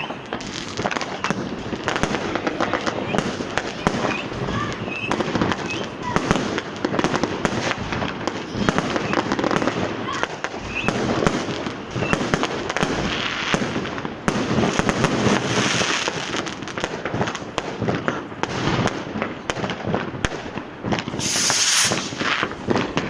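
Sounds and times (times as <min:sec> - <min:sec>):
firecrackers banging: 0:00.0 - 0:23.0
firework hissing burst: 0:21.1 - 0:23.0.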